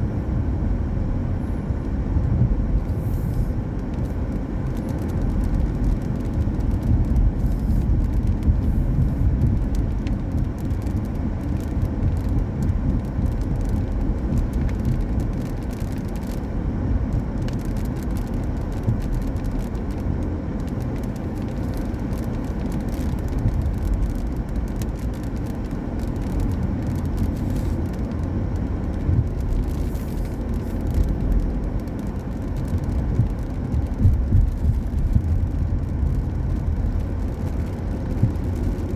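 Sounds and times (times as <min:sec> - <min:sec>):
car tyres on wet road: 0:00.0 - 0:38.9.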